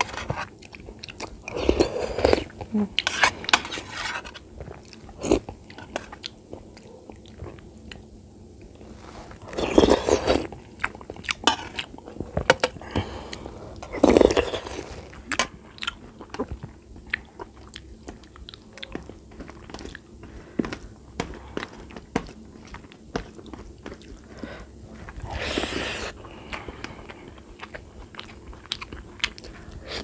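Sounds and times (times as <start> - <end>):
person chewing and smacking: 0.0 - 3.8, 4.4 - 30.0.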